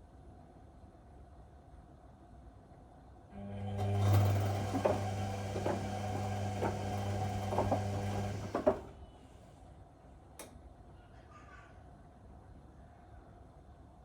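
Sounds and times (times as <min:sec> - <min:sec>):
washing machine motor humming: 0:03.3 - 0:09.0.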